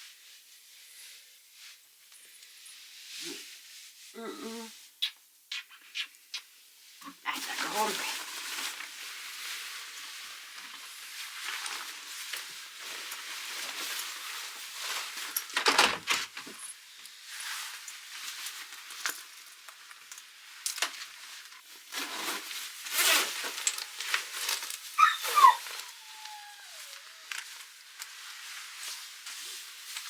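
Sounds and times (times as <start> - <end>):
puppy whining and yelping: 25.0 - 27.4.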